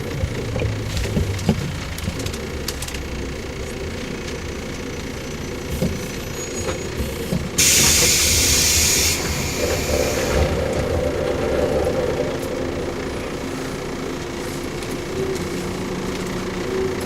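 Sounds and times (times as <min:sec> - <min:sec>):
train wheels and motors rumbling: 0:00.0 - 0:17.0
loud air hiss: 0:07.6 - 0:10.6.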